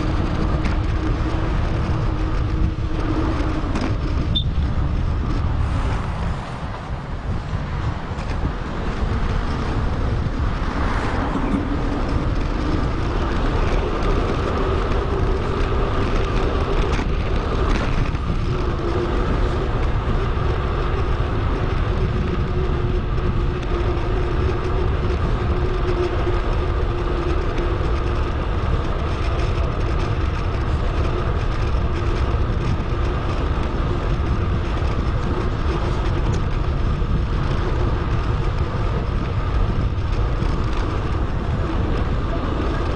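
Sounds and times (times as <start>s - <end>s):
tyres humming on road: 0.0s - 42.9s
wind on microphone: 0.0s - 42.9s.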